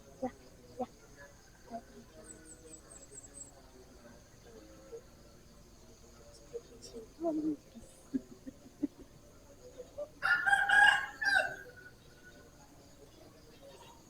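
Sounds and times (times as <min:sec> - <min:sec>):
rooster crowing: 0:10.2 - 0:11.9.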